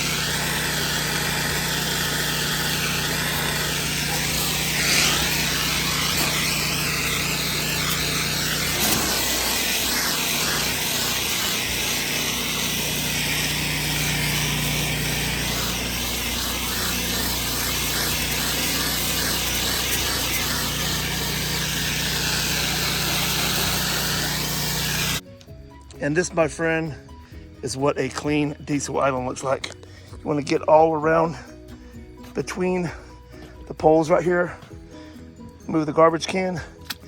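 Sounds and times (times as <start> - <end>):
high-pressure water spray hiss: 0.0 - 25.2
pressure washer engine hum: 0.0 - 25.2.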